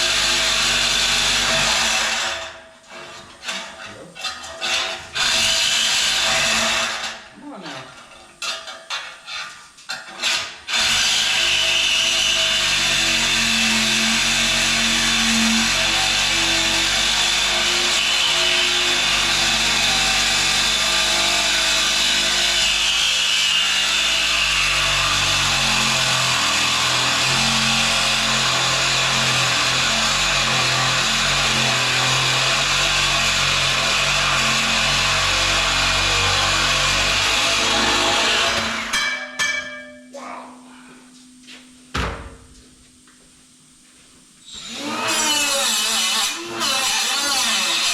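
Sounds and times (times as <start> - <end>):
power tool running: 10.2 - 38.9, 44.5 - 47.9.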